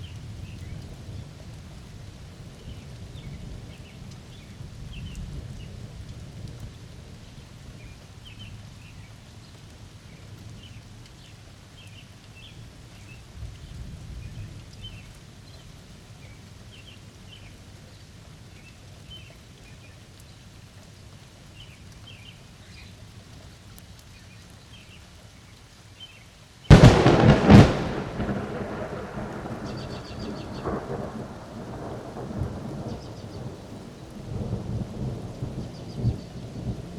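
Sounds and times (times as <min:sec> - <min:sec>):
steady rain: 0:00.0 - 0:36.9
distant thunder rumbling: 0:26.7 - 0:36.9
loud close thunderclap: 0:26.7 - 0:36.9
bird chirps: 0:29.6 - 0:30.7.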